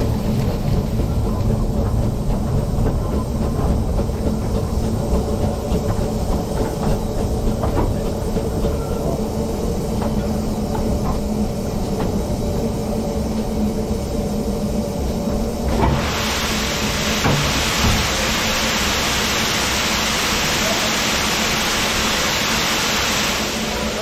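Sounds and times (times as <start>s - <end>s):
wheels clicking on rails: 0.0s - 12.6s
steam train rumbling along track: 0.0s - 24.0s.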